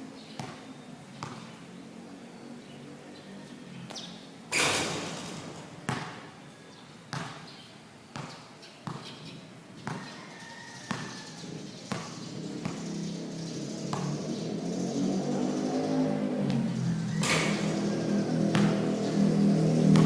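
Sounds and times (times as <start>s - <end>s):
basketball bouncing on court: 0.3s - 1.6s, 3.9s - 6.4s, 7.1s - 10.2s, 10.8s - 14.5s, 16.5s - 20.0s.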